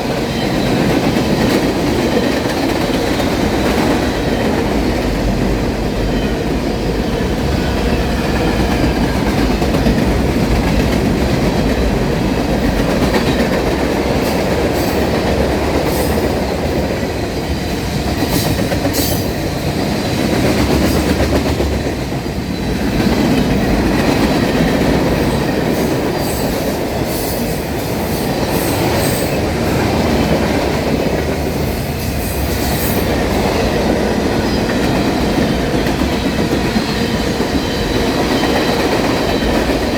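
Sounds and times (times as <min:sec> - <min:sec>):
freight train wheels rumbling: 0:00.0 - 0:39.9
wheels squealing on rail: 0:17.4 - 0:21.2, 0:22.4 - 0:39.9.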